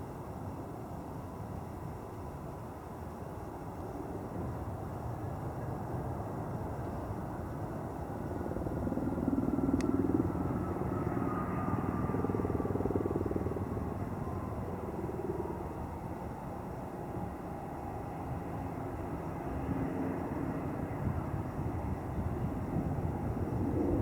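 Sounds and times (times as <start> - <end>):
jet airliner passing: 9.8 - 16.3, 18.2 - 24.0.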